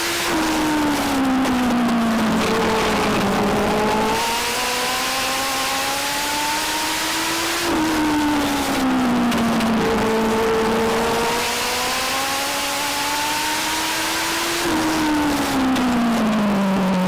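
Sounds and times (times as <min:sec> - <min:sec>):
racing engine under load: 0:00.0 - 0:17.0.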